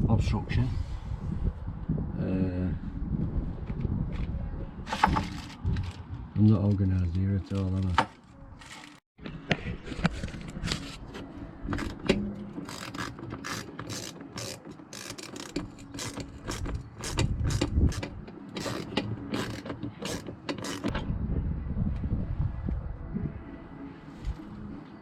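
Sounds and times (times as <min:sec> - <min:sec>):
mechanical clicking and rattling: 0:04.9 - 0:06.0, 0:11.7 - 0:21.0
low rumble: 0:20.9 - 0:24.8.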